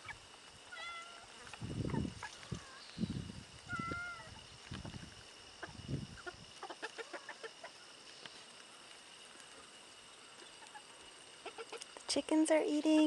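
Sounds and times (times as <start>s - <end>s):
chickens clucking: 1.4s - 2.8s, 3.7s - 8.1s, 10.3s - 12.0s.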